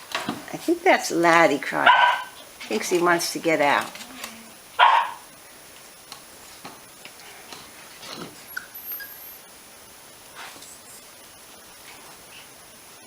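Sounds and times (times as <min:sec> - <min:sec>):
puppy yipping: 0:04.8 - 0:05.2
small squeaks: 0:08.1 - 0:09.5.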